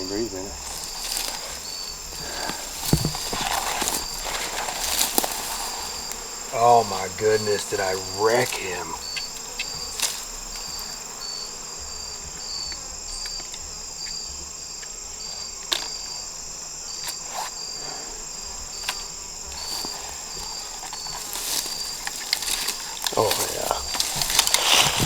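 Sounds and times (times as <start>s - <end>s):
insect pulsing chirps: 0.0s - 14.3s
cricket trilling: 0.0s - 25.0s.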